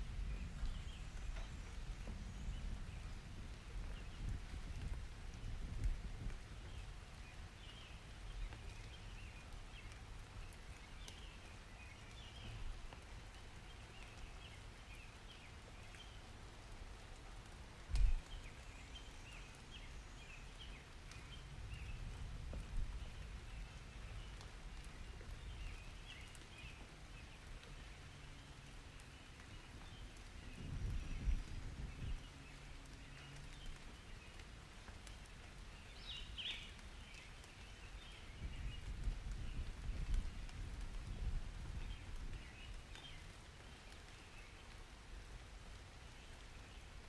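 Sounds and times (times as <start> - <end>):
rain patter: 0.0 - 47.0
small birds chirping: 18.0 - 47.0.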